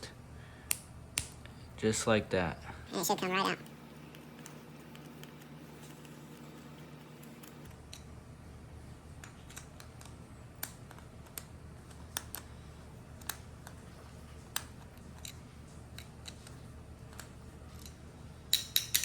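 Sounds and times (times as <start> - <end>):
small metal parts clicking: 14.4 - 19.0.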